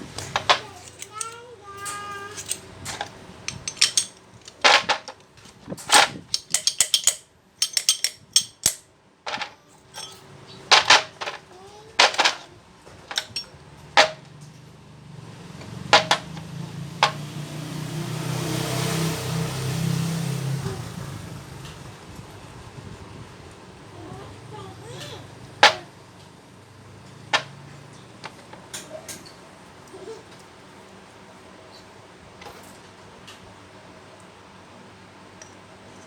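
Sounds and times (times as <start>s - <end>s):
metal tools clinking and knocking: 0.1s - 12.4s, 13.1s - 14.7s, 15.6s - 17.2s, 25.6s - 25.9s, 27.0s - 29.4s.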